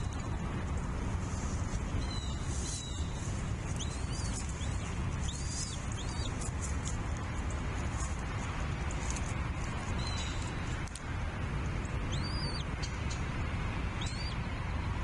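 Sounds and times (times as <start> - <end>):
steady low rumble: 0.0 - 15.0
high-pitched bird calls: 12.1 - 13.2.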